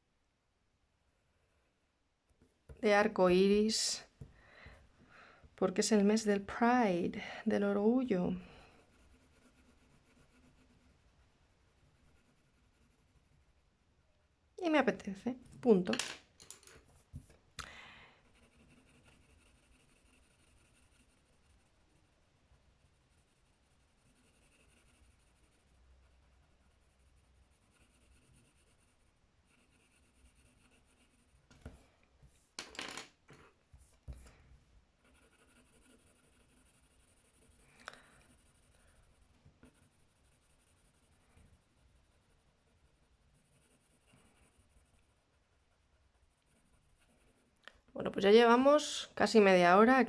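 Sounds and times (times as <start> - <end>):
colouring tool scratching paper: 8.6 - 11.1, 11.7 - 13.6, 18.3 - 22.1, 22.8 - 31.5, 35.0 - 47.6.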